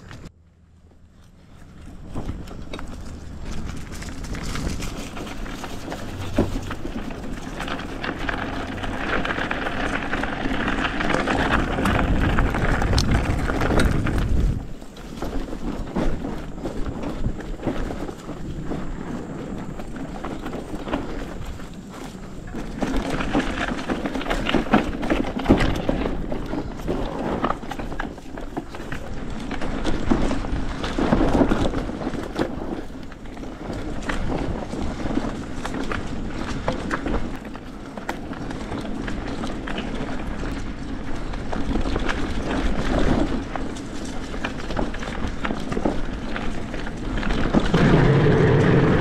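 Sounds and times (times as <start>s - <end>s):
bike tyres rumbling on dirt: 0.0s - 49.0s
bike rattles and knocks: 0.9s - 49.0s
wind on microphone: 8.4s - 28.0s, 45.3s - 49.0s.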